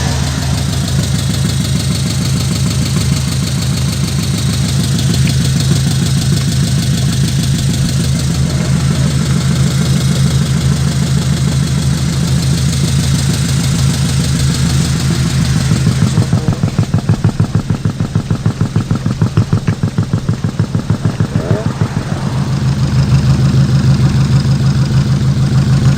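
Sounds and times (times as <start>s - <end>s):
diesel truck engine idling: 0.0s - 25.9s.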